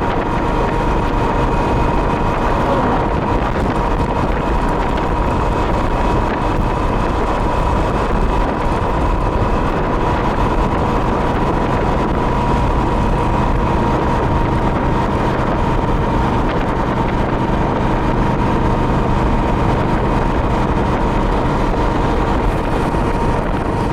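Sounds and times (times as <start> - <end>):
motorcycle engine drone: 0.0 - 23.9
wind rushing over microphone: 0.0 - 23.9
thin steady whine: 18.2 - 23.9.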